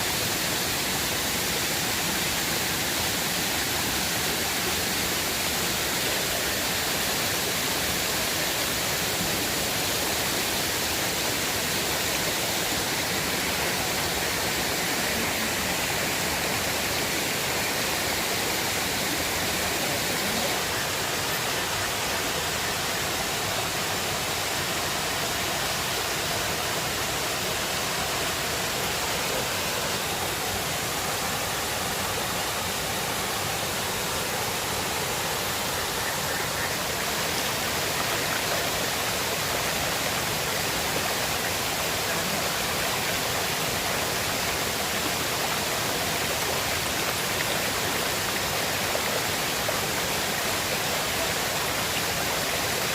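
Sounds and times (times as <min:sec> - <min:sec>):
river water rushing: 0:00.0 - 0:52.9.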